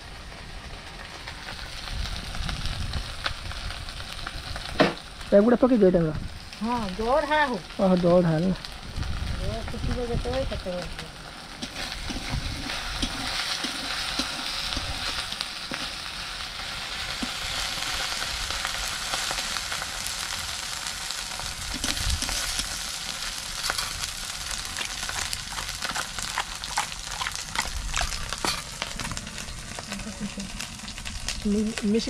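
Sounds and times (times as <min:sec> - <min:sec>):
onion sizzling in oil: 0:00.0 - 0:32.0
spatula scraping a pan: 0:11.6 - 0:16.0.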